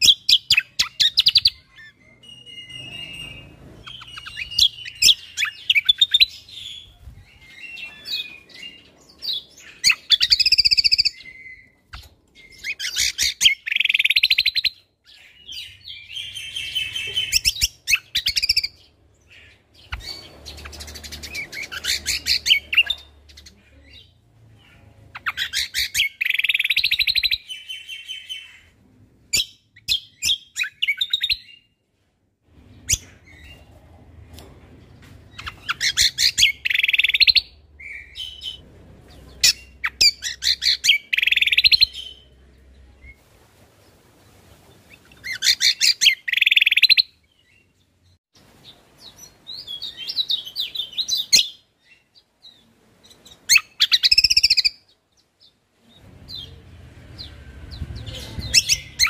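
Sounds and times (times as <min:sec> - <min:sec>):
bird singing fast trills: 0:00.0 - 0:11.8, 0:15.4 - 0:28.7, 0:35.4 - 0:38.6, 0:53.5 - 0:54.9.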